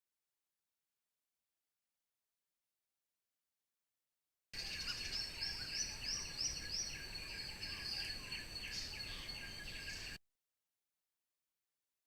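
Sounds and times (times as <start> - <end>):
insect droning: 4.6 - 10.2.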